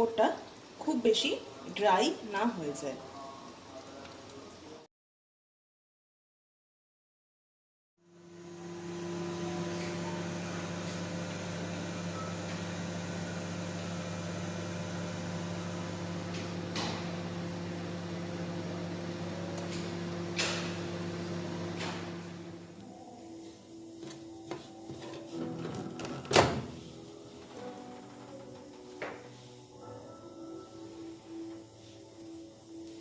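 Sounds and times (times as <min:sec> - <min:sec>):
microwave oven humming: 0:08.1 - 0:33.0.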